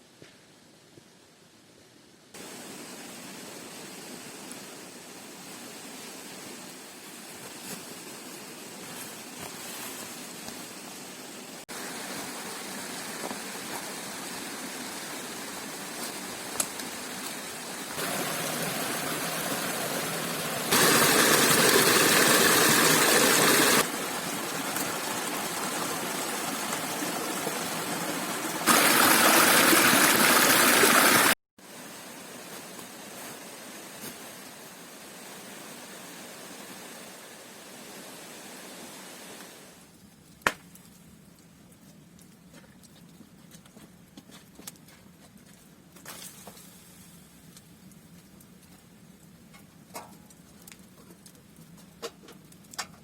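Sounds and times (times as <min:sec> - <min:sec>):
steady rushing noise: 0:17.8 - 0:31.4.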